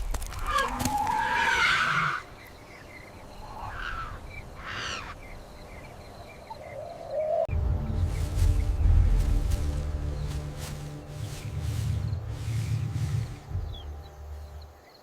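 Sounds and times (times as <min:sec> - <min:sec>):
wild animal calls: 0:03.4 - 0:05.2
low rumble: 0:07.5 - 0:14.8.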